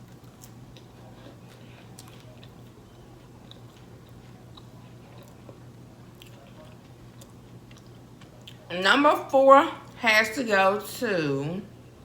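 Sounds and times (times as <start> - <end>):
quiet chewing: 0.0 - 8.7
steady low hum: 0.0 - 12.0.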